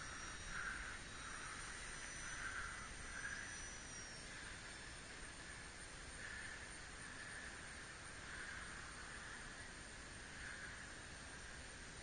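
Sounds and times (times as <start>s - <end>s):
model plane motor and propeller whine: 0.0s - 12.0s.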